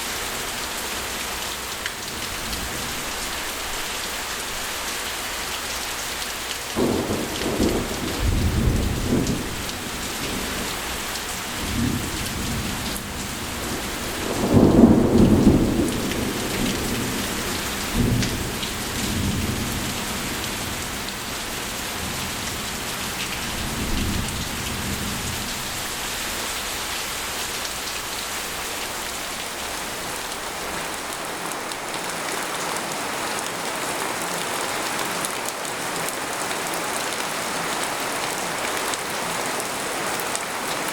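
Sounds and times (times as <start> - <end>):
heavy rain on a tent: 0.0 - 40.9
thunder rumbling: 6.8 - 20.6.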